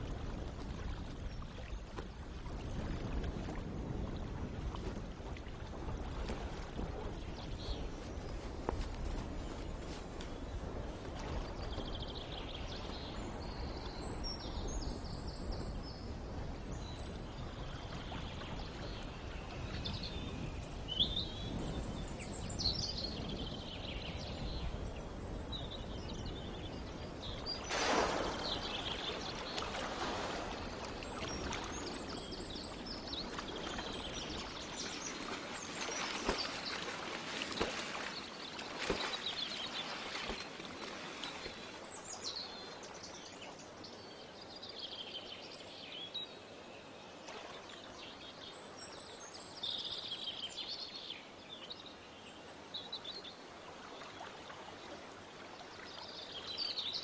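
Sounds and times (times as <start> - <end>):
water noise: 0.0 - 49.5
wind: 0.0 - 57.0
birds chirping: 16.7 - 46.6.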